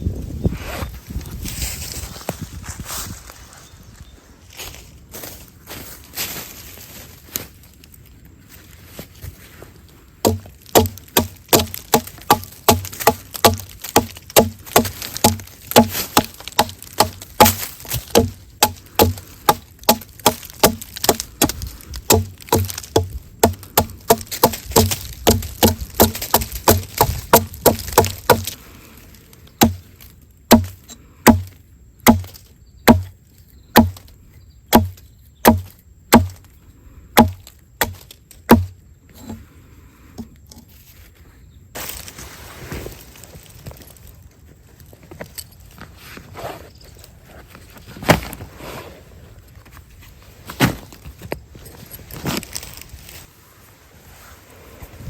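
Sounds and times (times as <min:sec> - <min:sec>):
wood being chopped: 0:10.2 - 0:28.6, 0:29.6 - 0:34.1, 0:34.7 - 0:36.5, 0:37.2 - 0:39.4.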